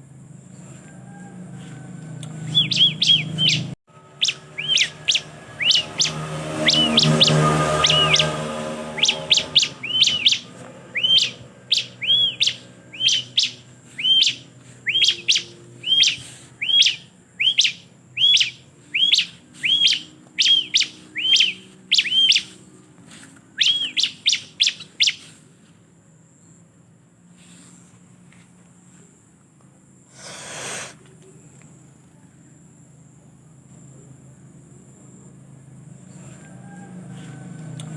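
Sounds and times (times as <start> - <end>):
bird chirping: 2.3 - 22.7, 23.5 - 25.4.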